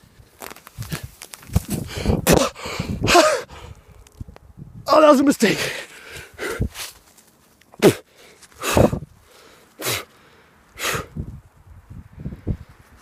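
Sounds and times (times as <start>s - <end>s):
man huffing breath: 1.8s - 3.9s, 5.6s - 6.8s, 7.8s - 11.3s.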